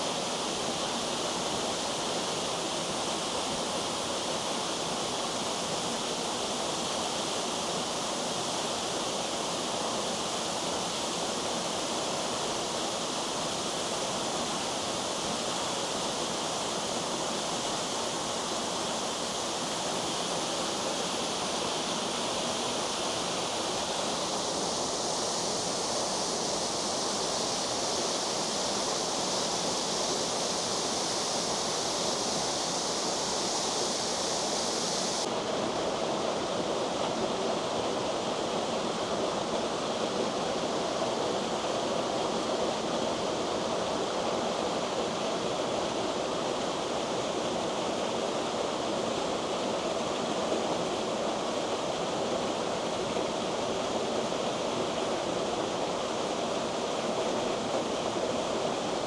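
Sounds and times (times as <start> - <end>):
waterfall rushing: 24.4 - 35.3.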